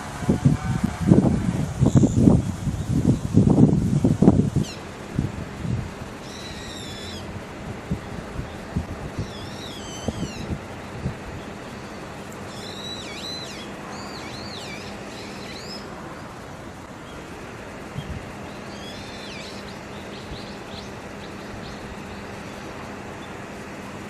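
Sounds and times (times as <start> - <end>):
background hiss: 0.0 - 24.0
bird whistling calls: 6.2 - 7.3, 9.2 - 10.5, 11.8 - 15.9, 18.7 - 22.6.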